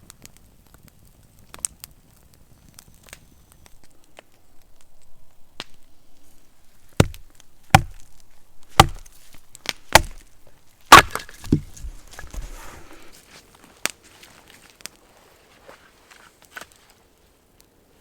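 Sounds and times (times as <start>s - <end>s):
axe chopping wood: 6.9s - 12.5s.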